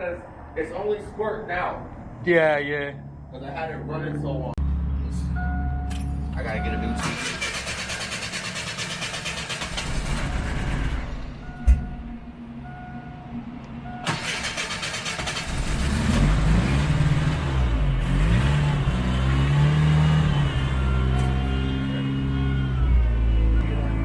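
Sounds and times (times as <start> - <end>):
car engine starting and revving: 6.8 - 11.6, 14.0 - 24.0.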